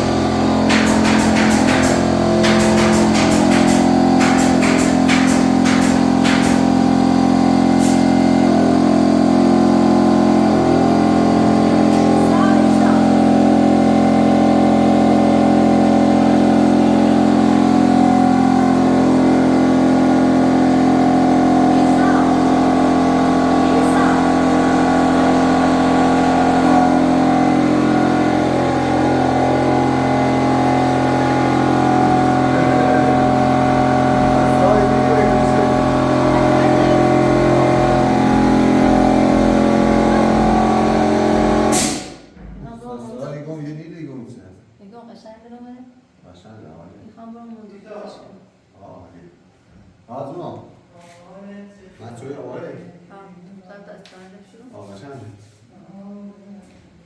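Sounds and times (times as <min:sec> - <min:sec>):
motor humming: 0:00.0 - 0:42.3
sharp knocks: 0:00.6 - 0:06.8.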